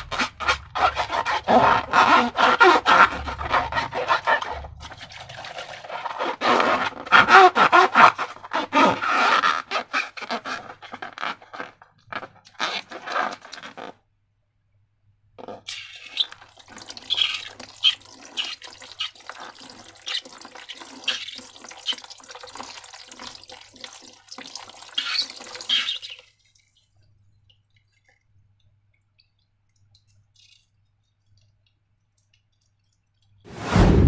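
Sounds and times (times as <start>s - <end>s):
sticky slime squelching: 0.0s - 9.1s.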